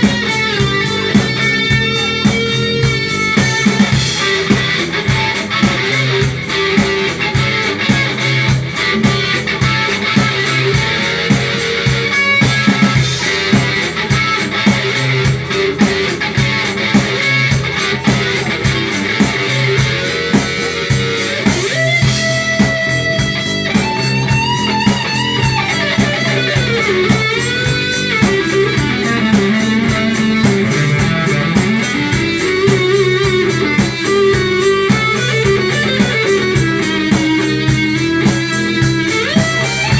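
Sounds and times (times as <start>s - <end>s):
bending guitar lead line: 0.0s - 39.9s
drum kit beat: 0.0s - 39.9s
electric guitar: 0.0s - 39.9s.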